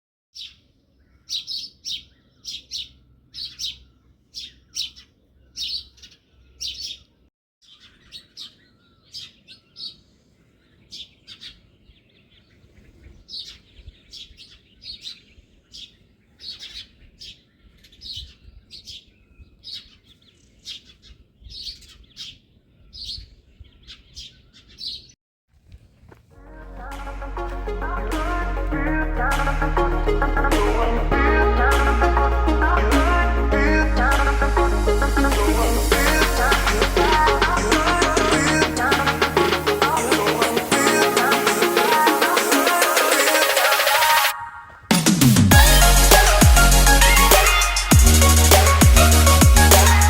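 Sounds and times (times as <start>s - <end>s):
songbird chirping: 0.4s - 25.2s
music: 26.4s - 44.3s, 44.9s - 50.0s.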